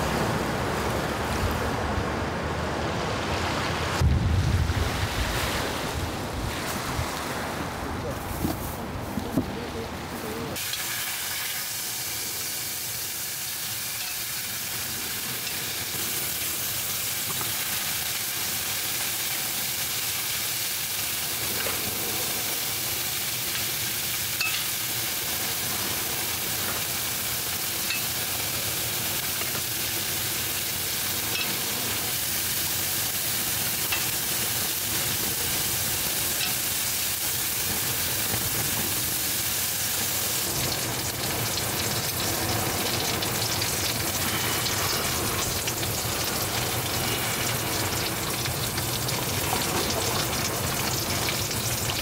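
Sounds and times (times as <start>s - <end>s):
food sizzling in a hot pan: 10.6s - 52.0s.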